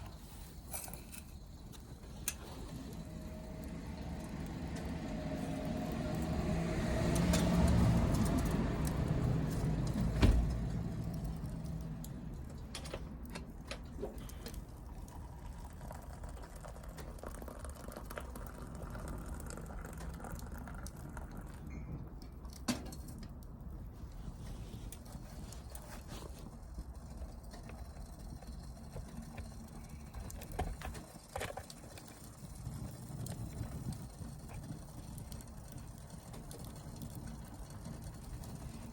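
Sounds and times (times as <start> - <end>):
vehicle engine passing: 2.6 - 12.4.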